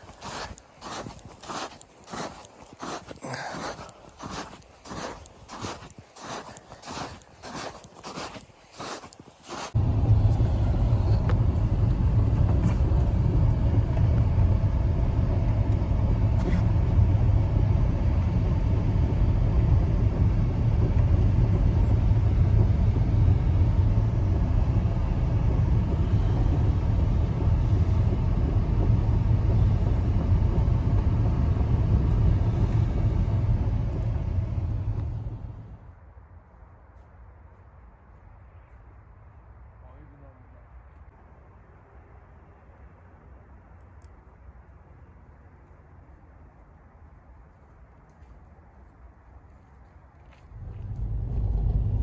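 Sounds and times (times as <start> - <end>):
loud low rumble: 9.8 - 35.9, 50.4 - 52.0.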